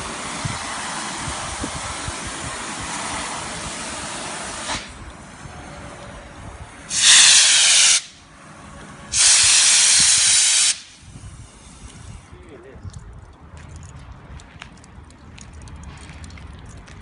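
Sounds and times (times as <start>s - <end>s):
gas hissing from a torch: 0.0s - 5.0s, 6.9s - 8.2s, 9.1s - 12.3s
loud blasts of gas: 0.0s - 5.7s, 6.8s - 8.2s, 9.1s - 12.3s.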